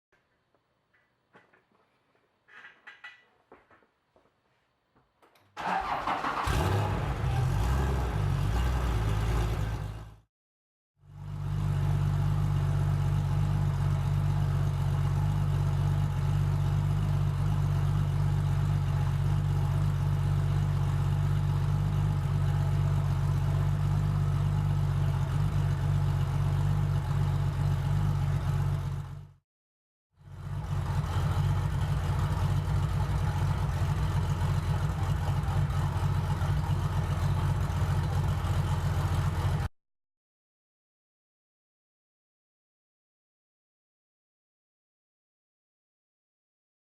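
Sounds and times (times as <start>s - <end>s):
vehicle engine starting and idling: 5.6s - 10.2s, 11.2s - 29.4s, 30.3s - 39.7s.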